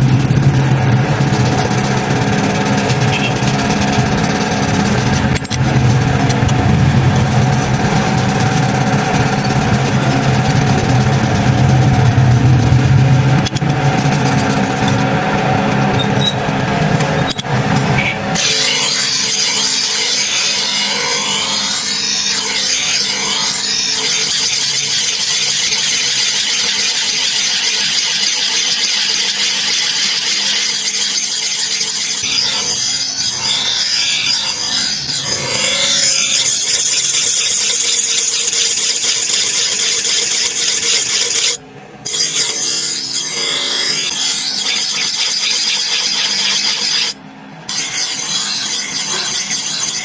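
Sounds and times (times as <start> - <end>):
abrasive scraping on metal: 0.0 - 50.0.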